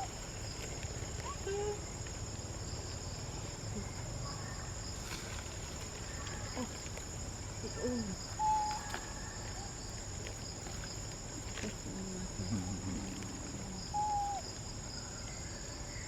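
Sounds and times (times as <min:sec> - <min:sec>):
insects chirping: 0:00.0 - 0:16.0
whistled calls: 0:08.4 - 0:09.4, 0:13.9 - 0:14.4.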